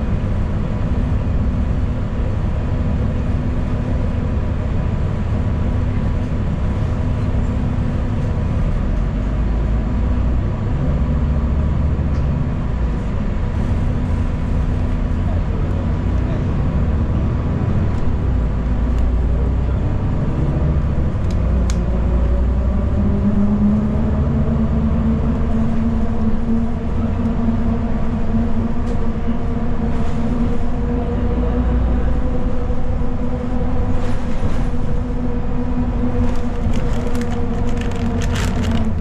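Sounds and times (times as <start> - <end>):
bus engine and road rumble: 0.0 - 39.0
rattles and clicks: 36.2 - 39.0.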